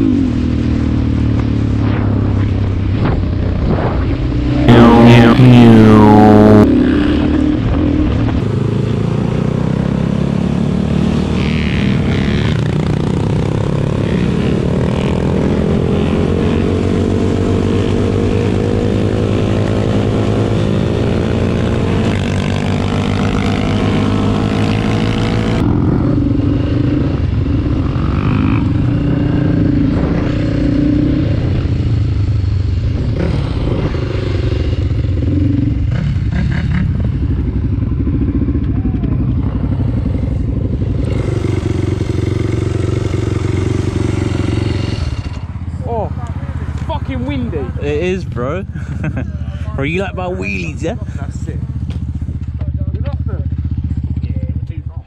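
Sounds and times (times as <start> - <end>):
motorcycle engine revving: 0.0 - 55.0
wind noise: 1.5 - 9.1, 11.6 - 32.2.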